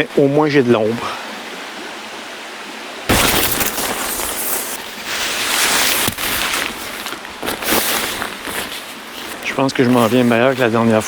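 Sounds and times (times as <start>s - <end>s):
tarp rustling: 3.1s - 11.0s.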